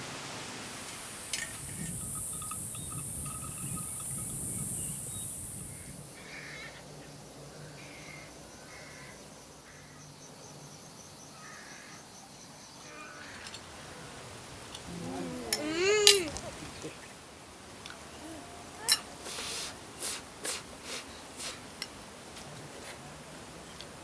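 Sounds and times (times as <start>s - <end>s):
steady high hiss: 0.0s - 24.0s
crows cawing: 8.0s - 10.0s, 11.4s - 12.0s.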